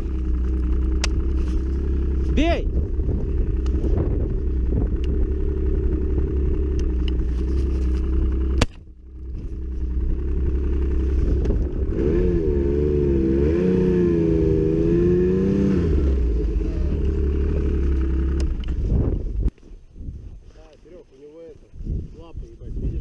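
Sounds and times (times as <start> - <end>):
snowmobile engine running: 0.0 - 19.5
sharp crack: 8.4 - 8.9.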